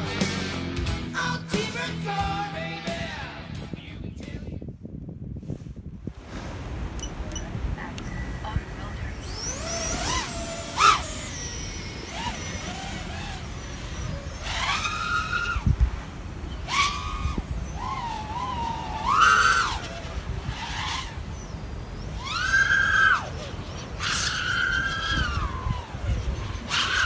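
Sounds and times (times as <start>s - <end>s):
quadcopter motors whining: 6.9s - 27.0s.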